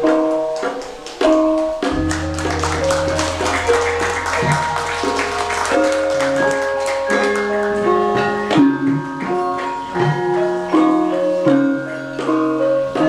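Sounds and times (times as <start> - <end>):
hand drum strokes: 1.7 - 7.8
gamelan metallophones ringing: 1.9 - 7.8.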